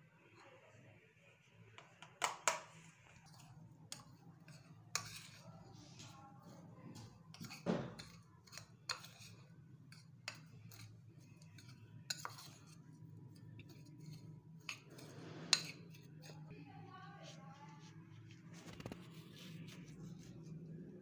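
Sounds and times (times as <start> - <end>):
metal spoon stirring in a bowl: 1.8 - 16.6.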